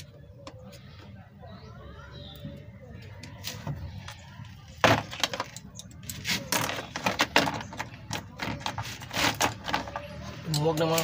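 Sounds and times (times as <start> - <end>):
hand tools clicking on metal: 10.4 - 11.0.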